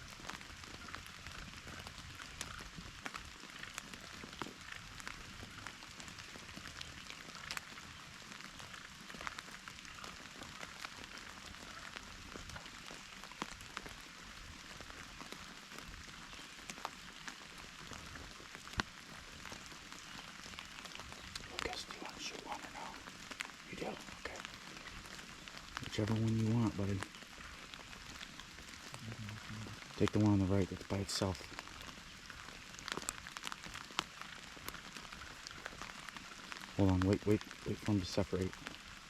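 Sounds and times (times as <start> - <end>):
rain hiss: 0.0 - 39.0.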